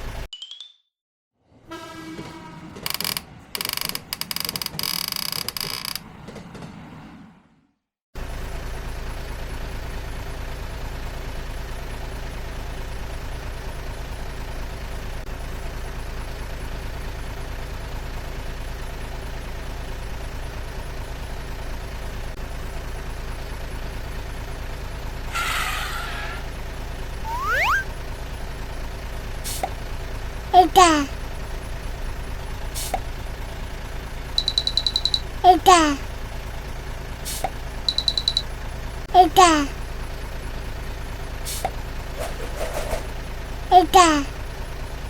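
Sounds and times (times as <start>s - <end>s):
vehicle engine rumble: 8.2s - 45.0s
short hiss: 29.5s - 29.7s, 32.8s - 33.0s, 37.2s - 37.5s, 41.5s - 41.7s.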